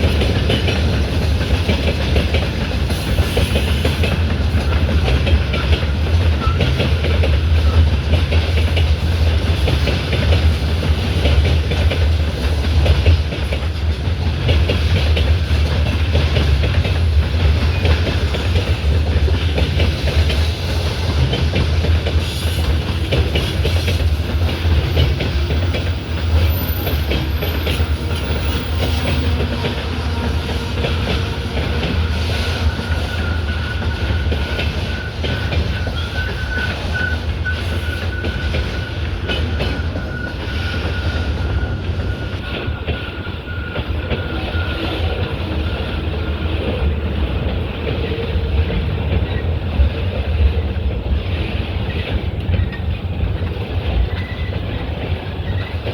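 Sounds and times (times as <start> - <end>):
train wheels clattering on rails: 0.0 - 55.9.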